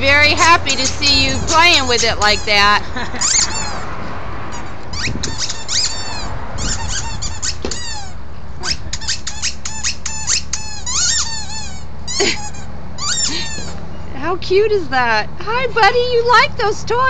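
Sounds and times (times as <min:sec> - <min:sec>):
squeaky pet toy squeaking: 0:00.3 - 0:03.9, 0:04.5 - 0:13.8.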